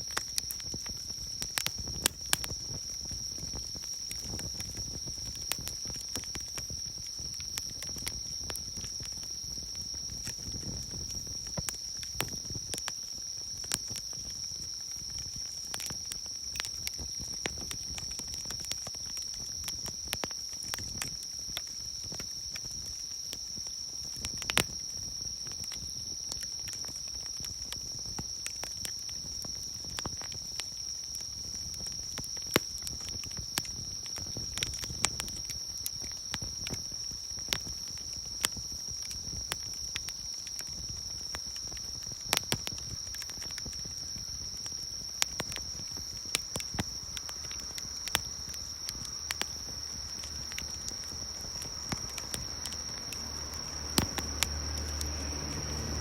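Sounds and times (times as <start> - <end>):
campfire crackling and popping: 0.0 - 56.0
insects calling: 34.2 - 56.0.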